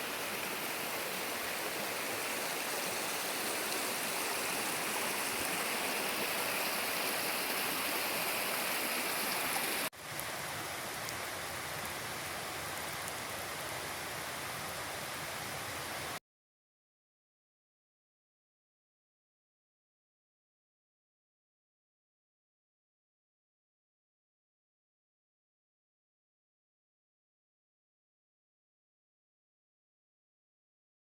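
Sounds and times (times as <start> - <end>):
mountain stream rushing: 0.0 - 16.2.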